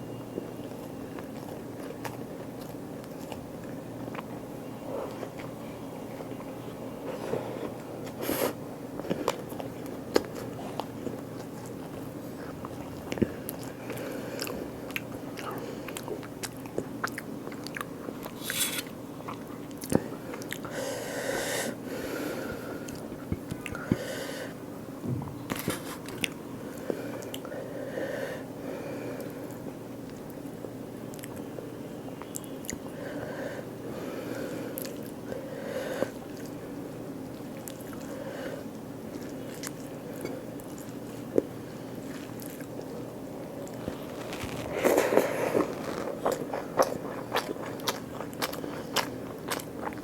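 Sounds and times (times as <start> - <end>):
person chewing: 0.4 - 4.3, 7.6 - 20.8, 34.7 - 35.3, 36.0 - 36.6, 39.1 - 43.0, 43.6 - 50.0.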